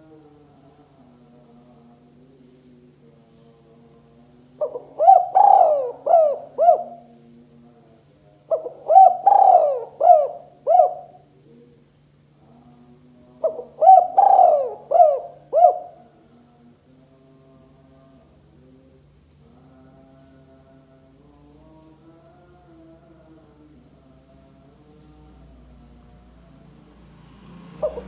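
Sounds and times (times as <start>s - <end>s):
dove cooing: 4.6s - 7.2s, 8.5s - 11.3s, 13.4s - 16.1s, 27.8s - 28.0s.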